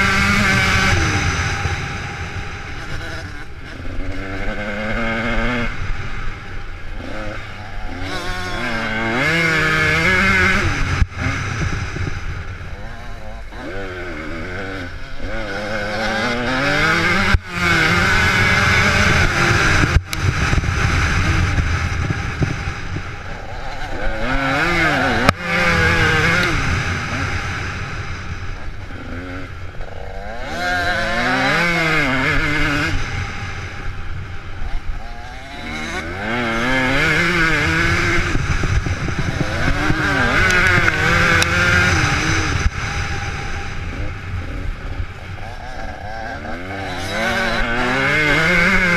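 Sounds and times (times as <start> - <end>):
dirt bike engines revving: 0.0 - 48.9.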